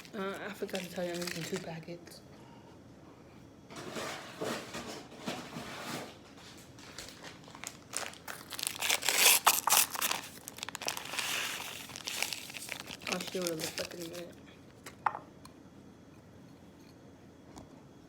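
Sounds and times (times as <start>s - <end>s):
paper packets crinkling and tearing: 0.0s - 1.8s, 6.6s - 14.4s.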